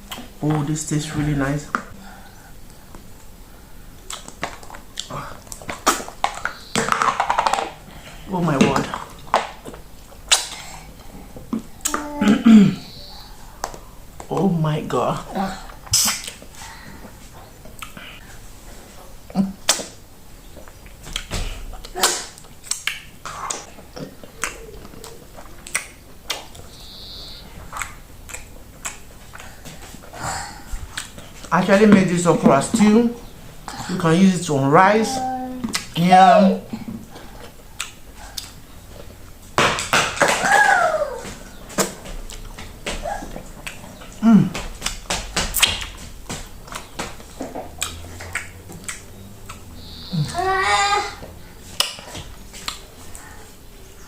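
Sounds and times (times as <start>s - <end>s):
wet lip smacks and chewing: 4.0s - 6.4s, 17.8s - 18.0s, 20.6s - 26.8s, 27.6s - 29.6s, 30.9s - 31.5s, 37.4s - 39.2s, 43.3s - 44.2s, 44.8s - 49.8s, 51.8s - 53.4s
wet mouth smacks while eating: 15.9s - 16.4s, 19.7s - 19.9s, 20.6s - 23.7s, 24.3s - 26.7s, 27.7s - 29.5s, 30.9s - 31.2s, 47.7s - 49.7s
person humming mm: 49.8s - 50.5s.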